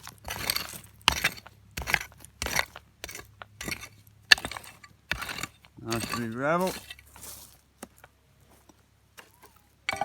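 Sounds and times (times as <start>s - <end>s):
stones clinking: 0.0s - 7.5s
gravel being dug and scraped: 0.0s - 10.0s.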